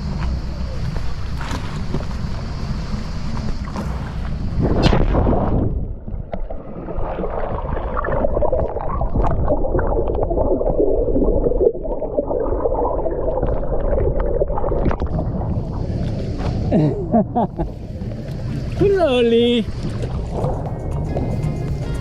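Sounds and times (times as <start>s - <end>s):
underwater bubbling and gurgling: 0.0s - 21.4s
splash into water: 3.6s - 9.9s.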